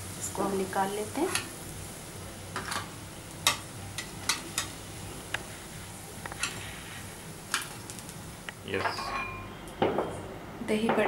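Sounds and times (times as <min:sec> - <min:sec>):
food frying in hot oil: 0:00.0 - 0:08.8.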